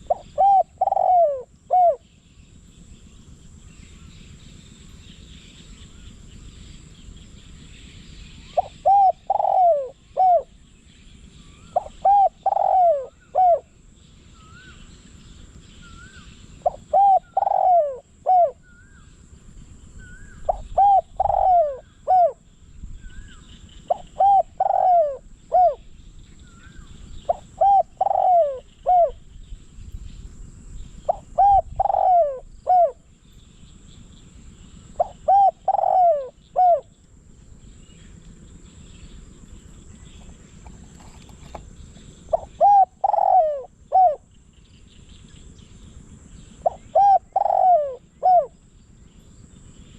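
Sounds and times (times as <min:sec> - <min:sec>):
dove cooing: 0:00.0 - 0:02.0, 0:08.6 - 0:10.6, 0:11.5 - 0:13.8, 0:15.9 - 0:19.1, 0:20.0 - 0:22.4, 0:23.1 - 0:29.3, 0:31.0 - 0:33.0, 0:34.9 - 0:36.9, 0:40.0 - 0:44.2, 0:46.6 - 0:48.6
small birds chirping: 0:00.0 - 0:49.9.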